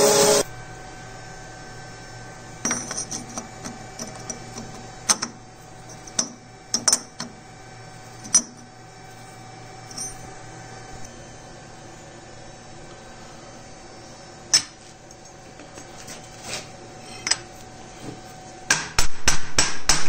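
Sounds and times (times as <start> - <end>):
metal parts clinking: 9.9 - 10.3.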